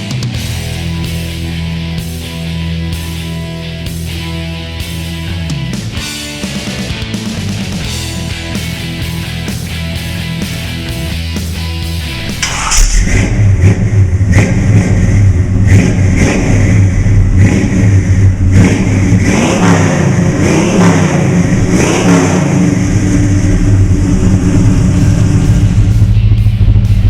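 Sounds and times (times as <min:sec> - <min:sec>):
car engine revving: 0:07.9 - 0:27.0.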